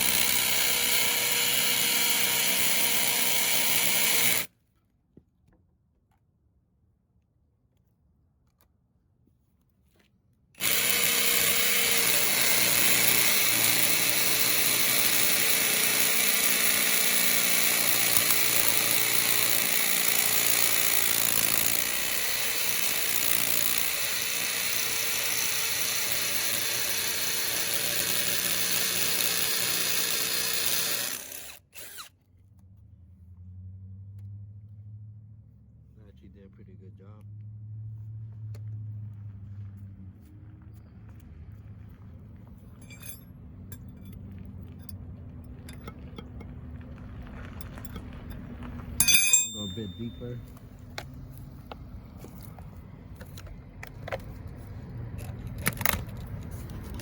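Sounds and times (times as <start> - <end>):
hammer drill boring into concrete: 0.0 - 4.5, 10.6 - 32.1, 42.8 - 44.2, 45.7 - 46.4, 47.8 - 48.4, 49.0 - 50.5.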